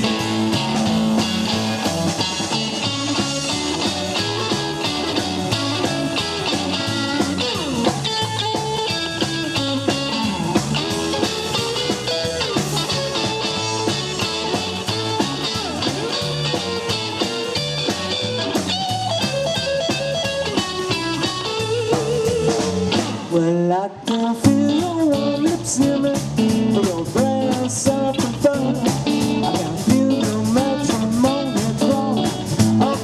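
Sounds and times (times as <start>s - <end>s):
double bass: 0.0s - 23.2s, 24.5s - 33.0s
electric lead guitar solo: 0.0s - 23.3s
drums: 0.0s - 33.0s.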